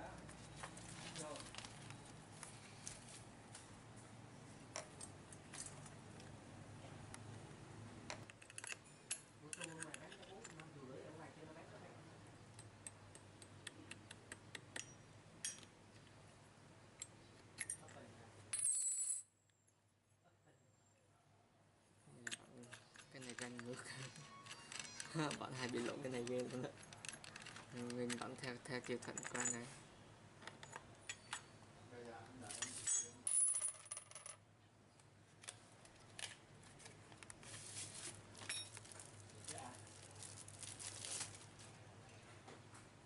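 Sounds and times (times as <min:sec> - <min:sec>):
metal parts clinking and rattling: 0:08.3 - 0:10.7, 0:22.2 - 0:29.7, 0:32.4 - 0:34.3, 0:38.4 - 0:39.2.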